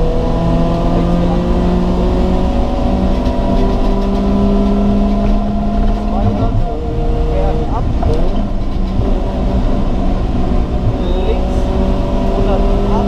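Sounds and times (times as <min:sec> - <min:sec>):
car engine under load: 0:00.0 - 0:13.0
tyre and road rumble: 0:00.0 - 0:13.0.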